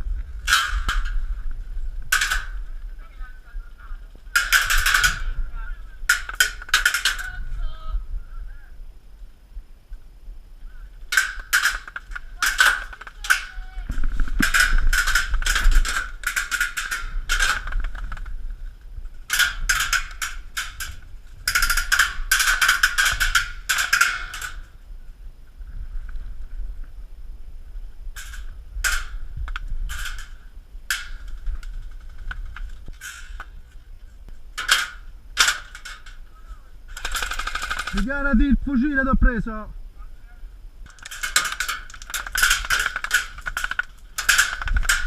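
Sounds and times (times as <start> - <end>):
airsoft rifle firing bursts: 36.9 - 38.1.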